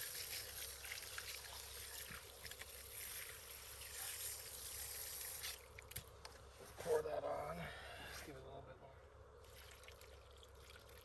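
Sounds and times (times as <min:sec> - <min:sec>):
water pouring onto soil: 0:00.0 - 0:05.7, 0:09.4 - 0:11.0.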